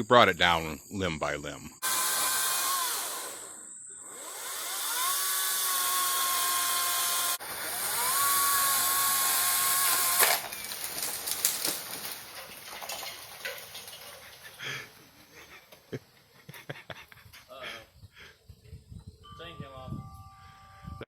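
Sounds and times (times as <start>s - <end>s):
electric chainsaw motor whining: 1.8s - 11.1s
sharp cracks and snaps: 9.4s - 14.2s.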